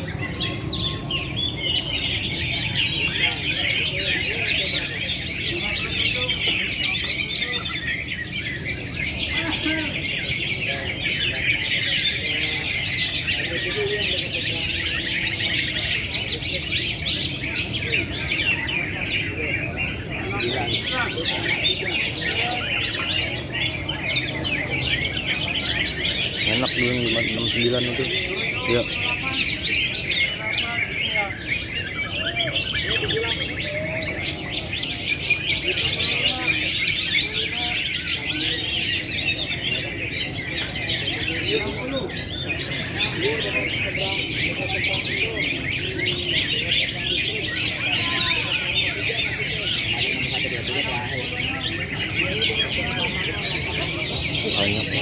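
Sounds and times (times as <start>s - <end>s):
low crowd hum: 0.0s - 55.0s
songbirds chirping and trilling: 0.0s - 55.0s.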